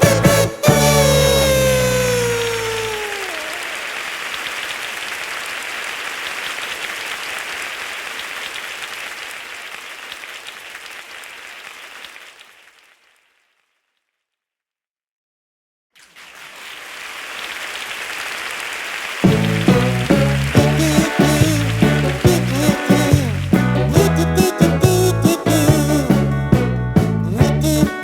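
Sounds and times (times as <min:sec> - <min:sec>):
falling pitch glide: 0:00.0 - 0:03.7.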